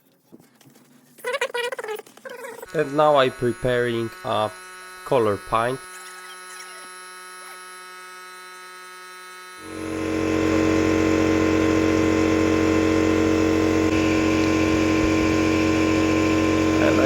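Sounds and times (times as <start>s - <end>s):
paint sprayer motor humming: 2.4s - 17.0s.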